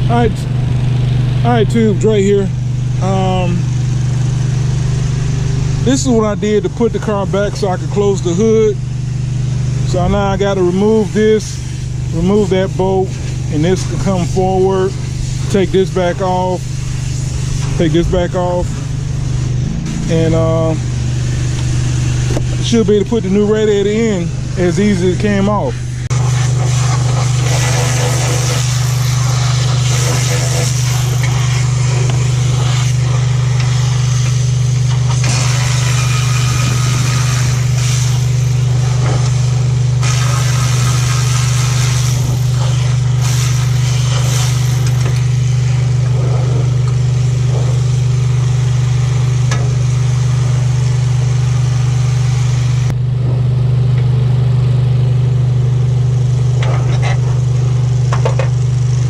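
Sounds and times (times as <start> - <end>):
machinery engine drone: 0.0 - 59.0
hissing: 25.8 - 45.9.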